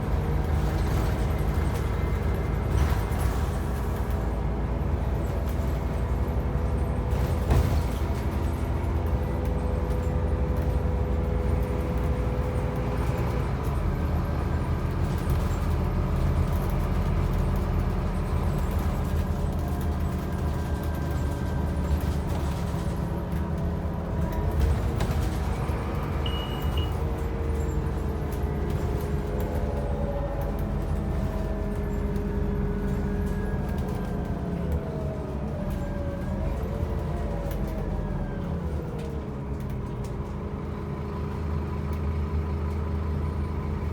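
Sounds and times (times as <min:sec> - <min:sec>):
bus engine drone: 0:00.0 - 0:43.9.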